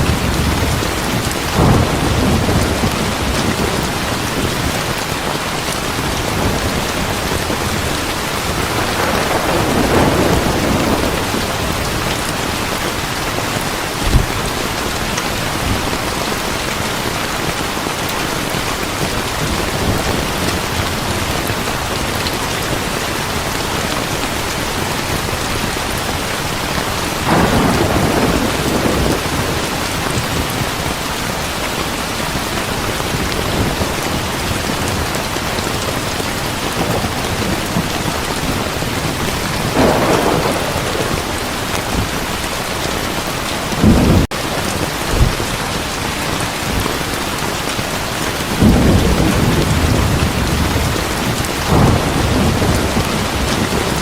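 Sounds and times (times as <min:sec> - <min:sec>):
thunder rolling: 0:00.0 - 0:05.0, 0:06.0 - 0:16.6, 0:27.2 - 0:30.8, 0:36.7 - 0:45.9, 0:48.5 - 0:54.0
heavy rain: 0:00.0 - 0:54.0.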